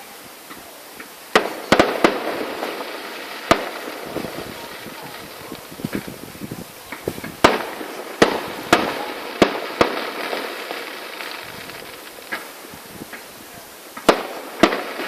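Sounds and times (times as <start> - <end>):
faint firework pops and crackle: 0.0 - 15.0
loud firework bangs: 0.0 - 15.0.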